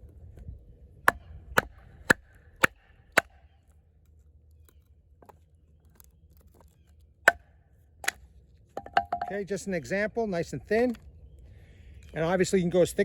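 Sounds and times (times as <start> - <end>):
wood splitting: 1.1 - 3.5, 5.2 - 9.4.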